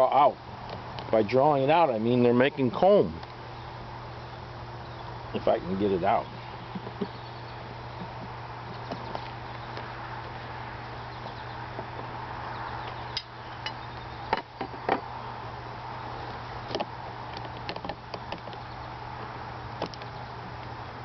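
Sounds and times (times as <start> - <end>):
steady low hum: 0.0 - 21.0
hive tool clicking on wood: 16.7 - 18.6, 19.8 - 20.7.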